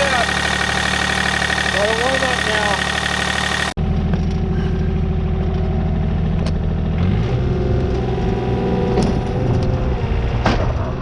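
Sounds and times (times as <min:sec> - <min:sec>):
excavator diesel engine running: 0:00.0 - 0:08.2.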